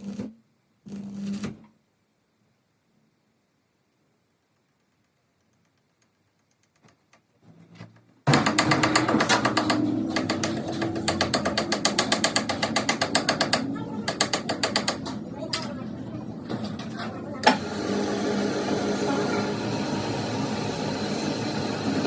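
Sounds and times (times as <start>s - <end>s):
workshop machine clattering: 8.2s - 22.0s.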